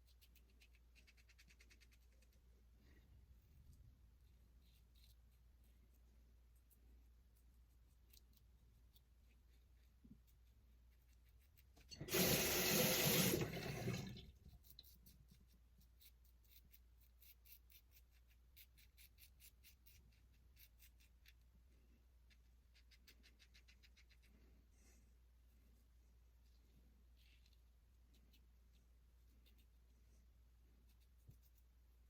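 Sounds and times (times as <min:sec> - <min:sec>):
sink tap running: 0:11.9 - 0:14.2.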